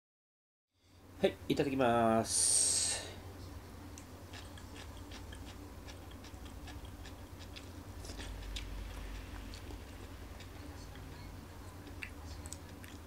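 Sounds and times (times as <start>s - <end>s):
person chewing crunchy food: 4.3s - 13.0s.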